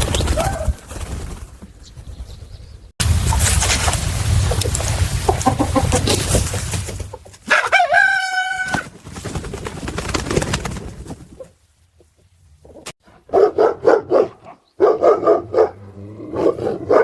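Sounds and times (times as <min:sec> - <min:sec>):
loud scuffling: 0:03.0 - 0:07.8
animal calls: 0:04.4 - 0:08.9
held animal call: 0:07.4 - 0:08.9.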